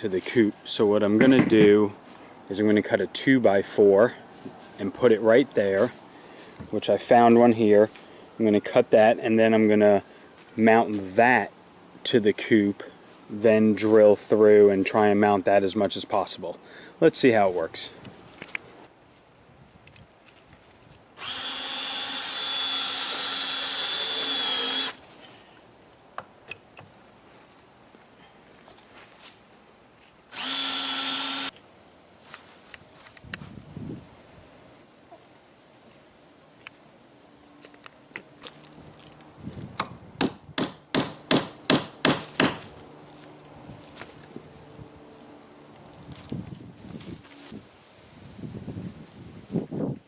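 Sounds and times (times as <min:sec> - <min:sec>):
power tool running: 0:21.2 - 0:25.0, 0:30.3 - 0:31.5.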